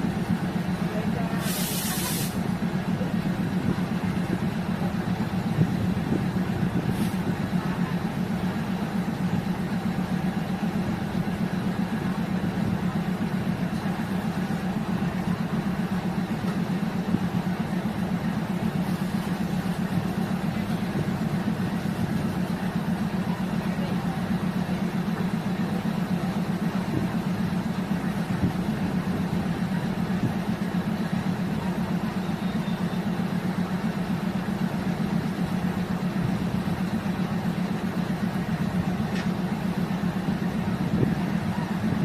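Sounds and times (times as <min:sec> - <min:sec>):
diesel engine droning: 0:00.0 - 0:42.0
air hiss: 0:01.4 - 0:02.5.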